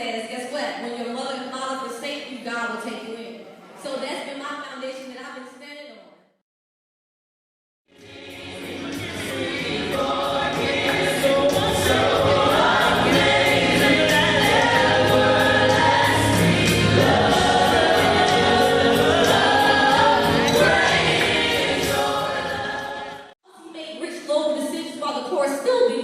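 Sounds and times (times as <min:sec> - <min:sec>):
choir singing: 0:07.9 - 0:23.4
steady drum beat: 0:08.6 - 0:23.0.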